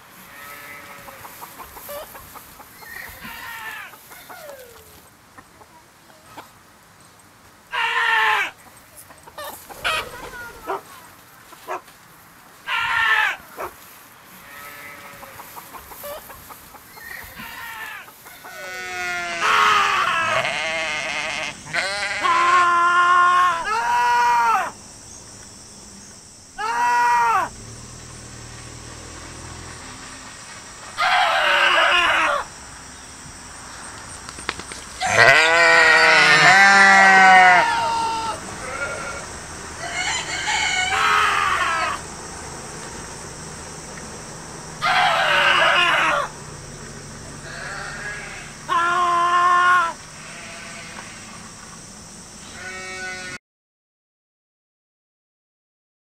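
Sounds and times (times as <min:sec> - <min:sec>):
sheep bleating loudly: 0:00.2 - 0:01.2, 0:03.2 - 0:03.9, 0:07.7 - 0:08.5, 0:14.4 - 0:15.4, 0:17.0 - 0:24.7, 0:35.0 - 0:42.0, 0:44.8 - 0:46.3, 0:47.4 - 0:51.3, 0:52.4 - 0:53.4.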